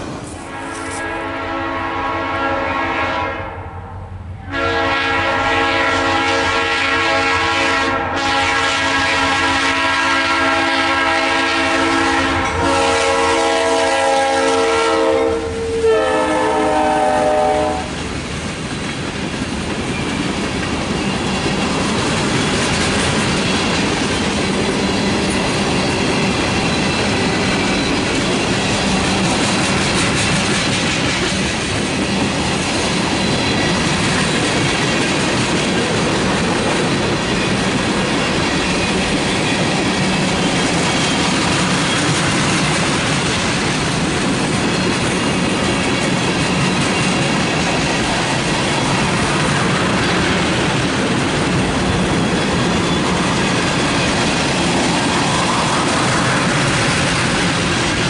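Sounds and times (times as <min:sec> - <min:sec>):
train rolling rumble: 0:00.0 - 0:02.2, 0:04.1 - 0:58.0
locomotive horn blasts: 0:00.4 - 0:03.7, 0:04.4 - 0:17.9.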